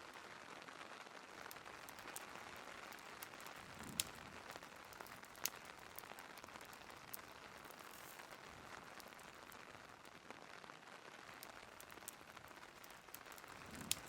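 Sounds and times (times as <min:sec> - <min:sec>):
fireplace crackles and snaps: 0:00.0 - 0:14.0
steady rain: 0:00.0 - 0:14.0.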